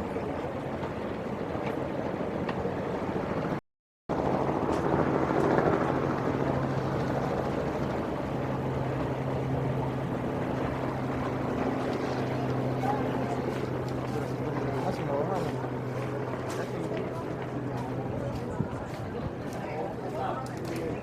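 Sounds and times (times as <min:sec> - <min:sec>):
engine hum: 0:00.0 - 0:21.0.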